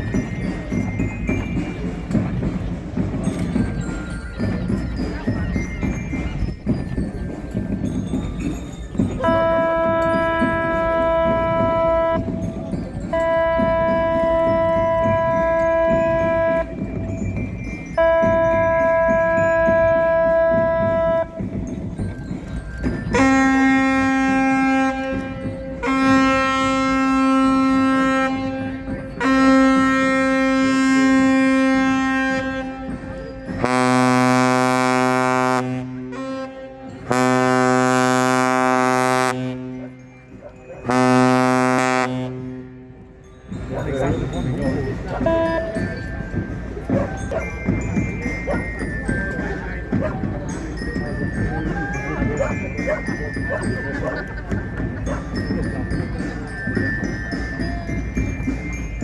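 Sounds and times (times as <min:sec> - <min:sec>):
ship's horn blasts: 0:09.2 - 0:16.8, 0:18.0 - 0:21.4, 0:23.1 - 0:40.0, 0:40.8 - 0:43.0, 0:45.2 - 0:45.9.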